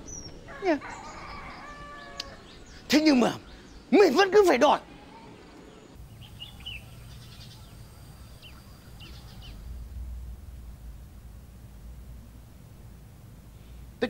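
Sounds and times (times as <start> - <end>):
small birds chirping: 0.0 - 14.0
faint low rumble: 5.0 - 14.0.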